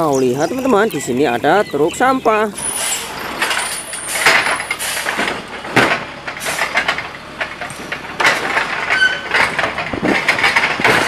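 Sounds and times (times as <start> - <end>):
garbage truck running: 0.0 - 11.0
hydraulic arm lifting cart: 2.5 - 11.0
knocks and clanks: 2.6 - 11.0.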